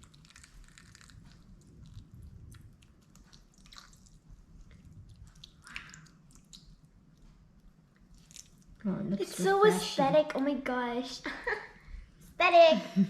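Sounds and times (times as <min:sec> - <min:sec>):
wet squishing of eating berries: 0:00.0 - 0:08.9.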